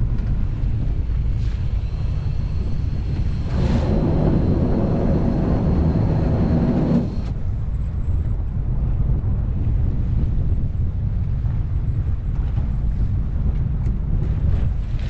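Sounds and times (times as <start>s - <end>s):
boat engine rumbling: 0.0s - 15.0s
wind buffeting microphone: 0.0s - 15.0s
mechanical whirr: 1.1s - 7.4s.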